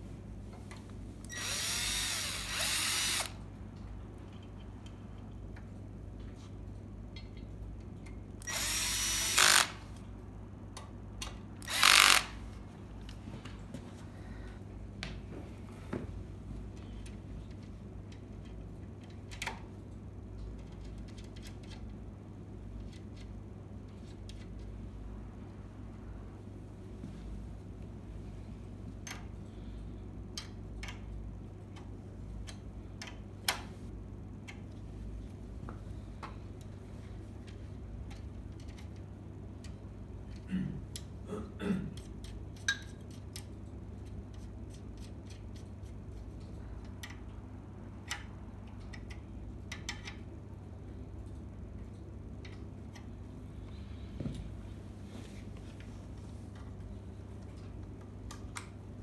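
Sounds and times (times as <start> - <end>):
low steady hum: 0.0 - 59.0
power drill running: 1.3 - 3.4, 8.4 - 9.9, 11.6 - 12.4.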